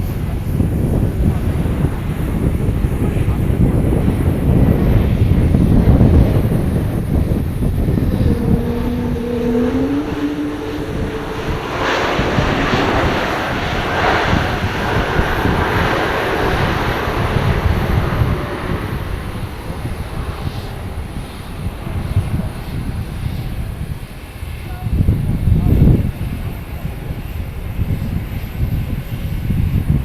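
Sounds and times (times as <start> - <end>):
airliner engine rumble: 0.0 - 30.0
wind buffeting microphone: 0.0 - 30.0
pair of rising tones: 7.6 - 14.7.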